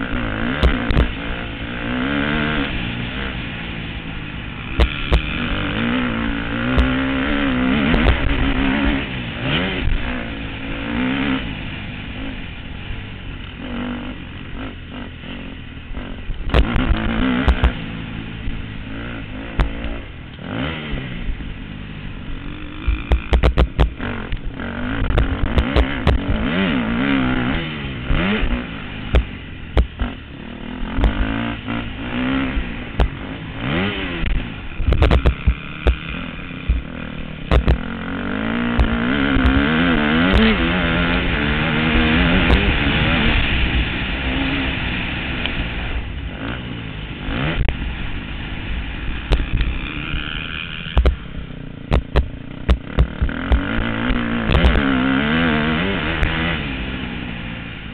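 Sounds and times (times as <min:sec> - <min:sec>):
motorcycle engines revving: 0:00.0 - 0:57.9
sharp knocks and clicks: 0:22.9 - 0:26.4, 0:34.2 - 0:36.8, 0:37.5 - 0:37.8, 0:50.9 - 0:51.2, 0:51.9 - 0:53.7.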